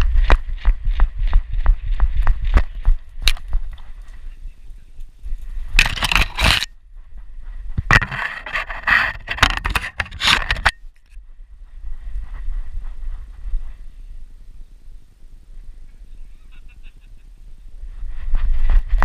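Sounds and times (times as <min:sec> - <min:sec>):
dog running footfalls: 0:00.0 - 0:04.2
loud scraping and crunching: 0:05.2 - 0:06.8, 0:07.6 - 0:10.8.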